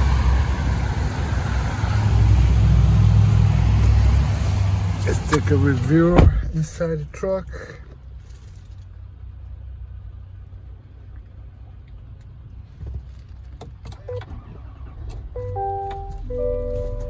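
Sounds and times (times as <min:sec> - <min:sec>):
vehicle rumble: 0:00.0 - 0:17.0
background music with held notes: 0:15.4 - 0:17.0.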